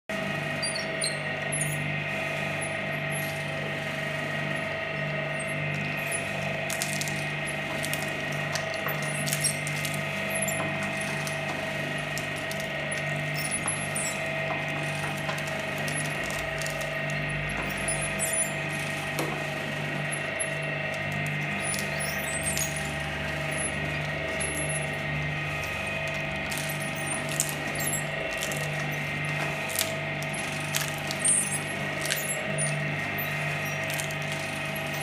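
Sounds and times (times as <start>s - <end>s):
shredder machine humming: 0.1s - 35.0s
sharp clicks and cracks: 6.4s - 17.9s, 25.7s - 35.0s.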